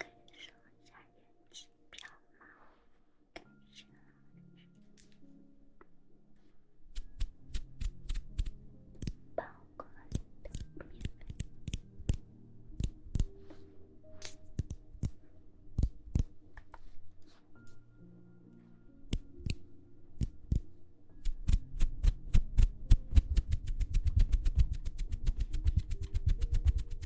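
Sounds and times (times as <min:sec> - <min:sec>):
sharp taps and clicks: 0:07.0 - 0:09.2, 0:10.1 - 0:13.3, 0:14.2 - 0:15.2, 0:20.2 - 0:27.0.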